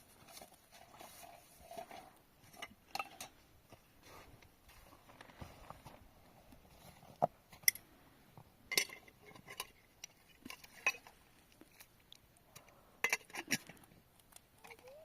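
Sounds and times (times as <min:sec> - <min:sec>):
light sharp clinks and knocks: 0:06.8 - 0:08.0, 0:08.7 - 0:15.0.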